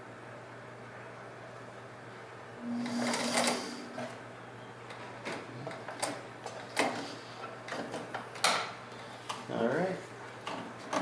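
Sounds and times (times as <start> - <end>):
sewing machine motor hum: 2.6 - 4.2.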